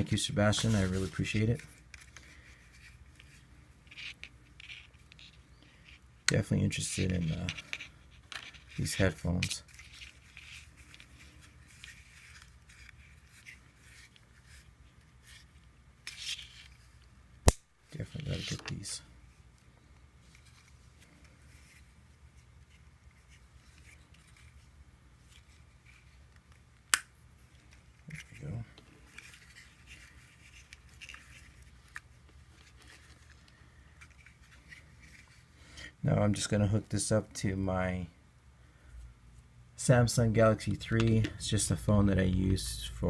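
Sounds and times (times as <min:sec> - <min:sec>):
packaging rustling and scraping: 0:00.0 - 0:06.0, 0:27.4 - 0:35.6
low steady hum: 0:00.0 - 0:43.0.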